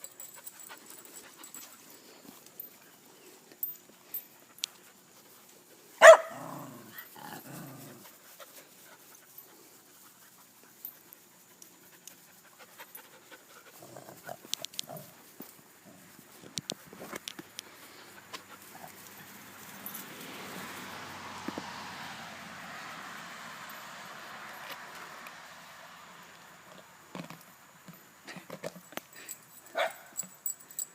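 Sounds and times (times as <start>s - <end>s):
dog barking: 6.0s - 6.7s, 29.7s - 30.1s
scuffling and clicks: 14.2s - 19.2s.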